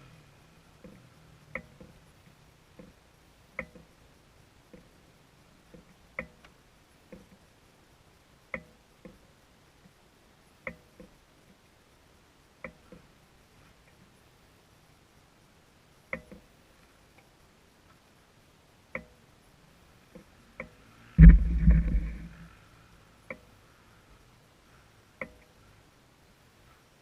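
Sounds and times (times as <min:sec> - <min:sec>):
faint sharp clicks: 0:03.6 - 0:03.9, 0:05.7 - 0:07.4, 0:08.5 - 0:09.2, 0:10.6 - 0:11.6, 0:16.1 - 0:18.0, 0:18.9 - 0:19.2, 0:25.2 - 0:25.6.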